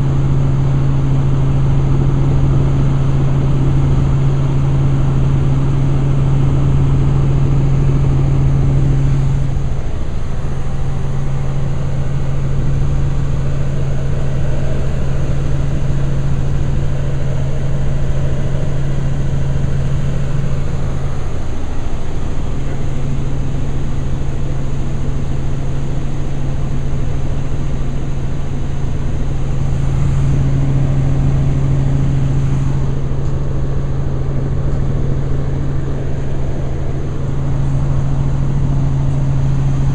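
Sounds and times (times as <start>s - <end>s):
helicopter drone inside cabin: 0.0s - 39.9s.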